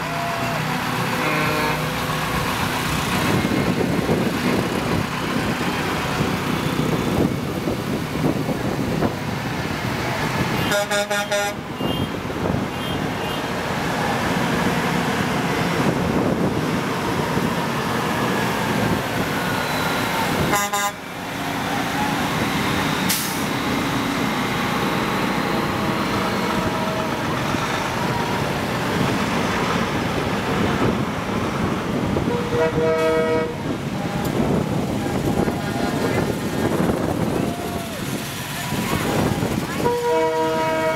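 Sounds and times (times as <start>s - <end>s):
truck horns tooting: 0.0s - 2.2s, 10.4s - 13.6s, 18.8s - 23.9s, 24.8s - 28.4s, 32.2s - 36.9s, 39.0s - 40.9s
trucks driving past: 0.0s - 40.9s.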